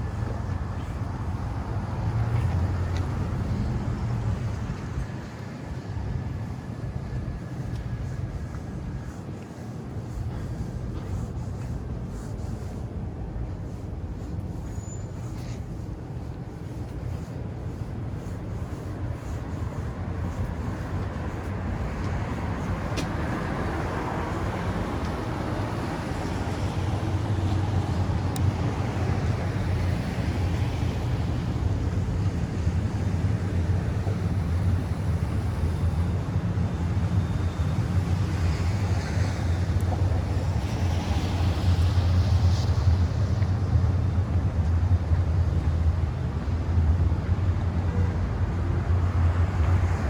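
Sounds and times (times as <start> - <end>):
street traffic rumble: 0.0 - 50.0.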